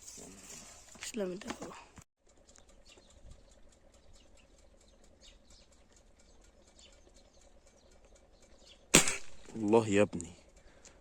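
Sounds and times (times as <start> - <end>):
faint high bird chirps: 2.3 - 9.6.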